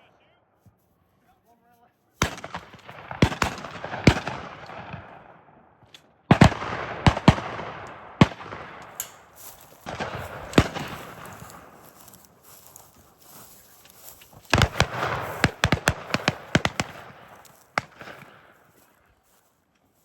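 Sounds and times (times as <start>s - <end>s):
shotguns firing with echo: 2.2s - 5.5s, 6.3s - 13.6s, 14.4s - 18.8s.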